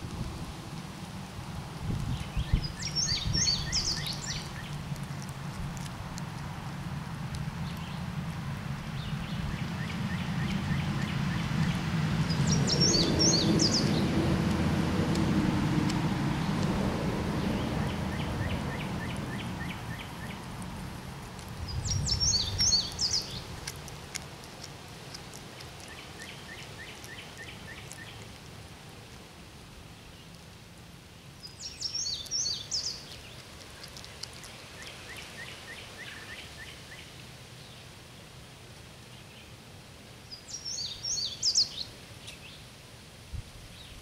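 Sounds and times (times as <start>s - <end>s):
songbirds twittering: 1.9s - 5.9s, 7.5s - 8.2s, 8.8s - 14.3s, 17.4s - 20.6s, 21.3s - 24.2s, 25.1s - 28.3s, 31.2s - 37.9s, 40.2s - 42.7s.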